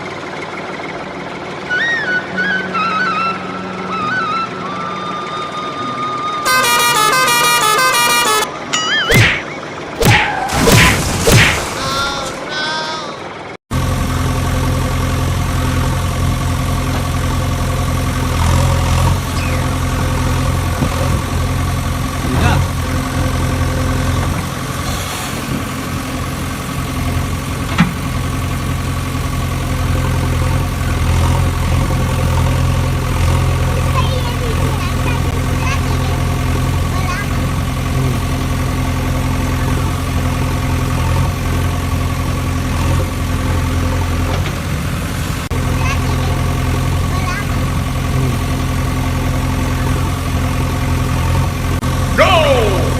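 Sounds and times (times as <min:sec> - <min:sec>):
vehicle engine idling: 0:00.0 - 0:08.8, 0:09.4 - 0:10.6, 0:11.6 - 0:52.9.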